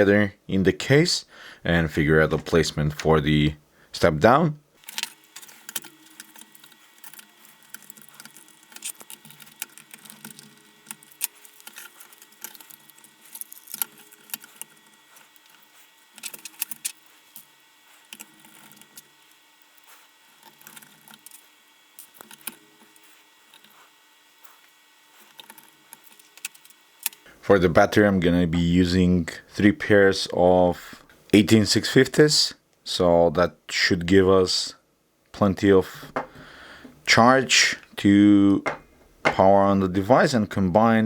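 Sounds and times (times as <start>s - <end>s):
clicks and rattles of small parts: 4.8s - 24.6s, 25.2s - 27.3s.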